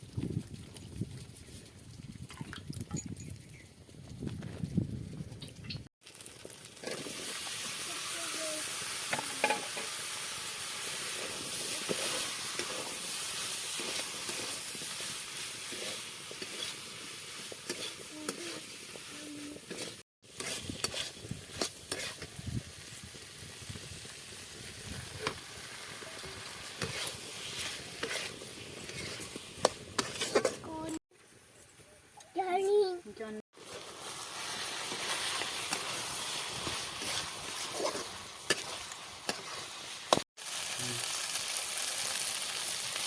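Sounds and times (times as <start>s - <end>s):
food sizzling in hot oil: 6.0s - 31.0s, 33.5s - 43.0s
utensil scraping a pan: 9.1s - 22.3s, 26.2s - 30.7s, 34.5s - 40.2s.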